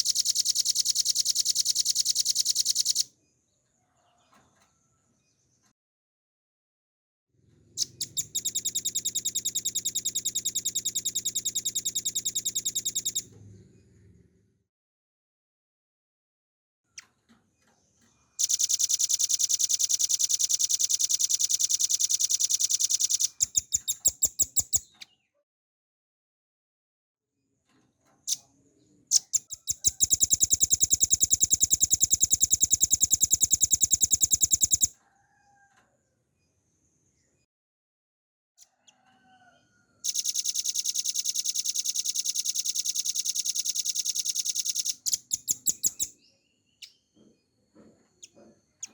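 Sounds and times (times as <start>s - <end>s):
bird song with fast trill: 0.0s - 3.1s, 7.8s - 13.3s, 18.2s - 25.3s, 29.1s - 34.9s, 40.1s - 47.6s.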